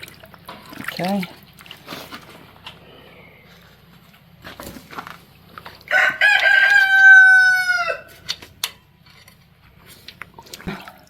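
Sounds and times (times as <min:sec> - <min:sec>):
rooster crowing: 0:05.9 - 0:08.2.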